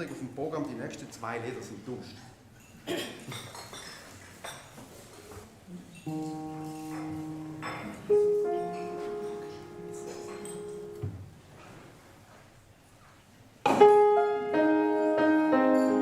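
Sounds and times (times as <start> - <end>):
knocks and clinks: 6.0 - 11.0
keyboard chords: 6.1 - 11.4, 13.7 - 16.0.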